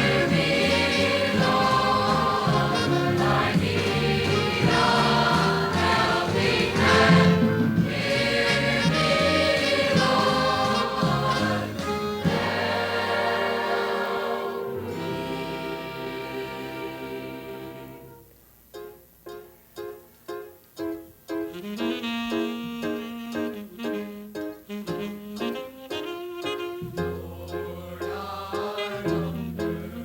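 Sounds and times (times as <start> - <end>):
choir singing gospel: 0.0 - 18.2, 27.0 - 30.0
instrumental backing: 0.0 - 30.0.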